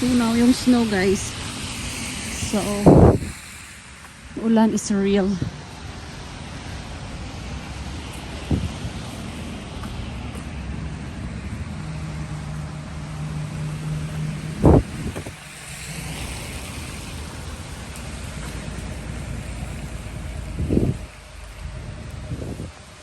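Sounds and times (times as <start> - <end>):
steady rain: 0.0 - 23.0
wind: 0.0 - 23.0
car engine hum: 5.5 - 23.0.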